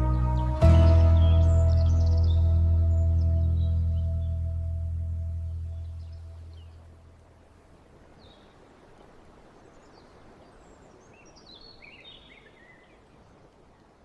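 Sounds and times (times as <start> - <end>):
bird chirps: 0.0 - 6.9.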